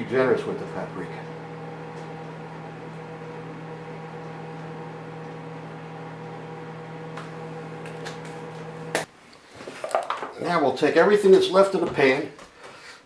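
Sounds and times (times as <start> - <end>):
kitchen appliance humming: 0.0 - 9.1.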